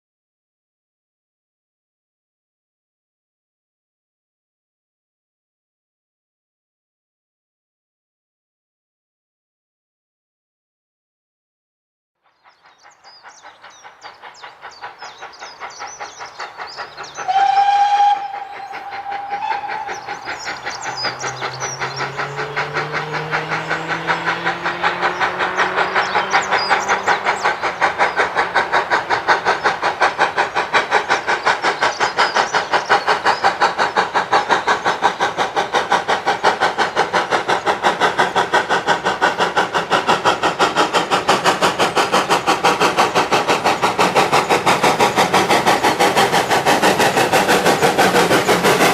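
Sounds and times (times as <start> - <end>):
locomotive exhaust beats: 12.8 - 48.9
steam locomotive whistle: 17.2 - 27.3.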